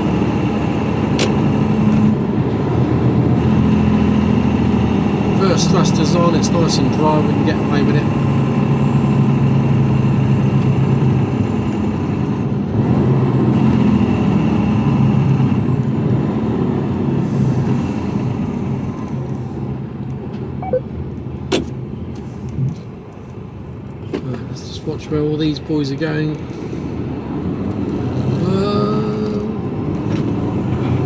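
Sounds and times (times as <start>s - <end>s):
truck diesel engine running: 0.0s - 15.8s.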